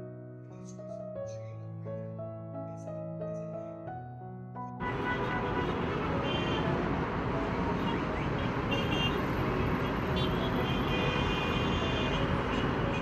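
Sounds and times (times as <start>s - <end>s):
road traffic noise: 4.8s - 13.0s.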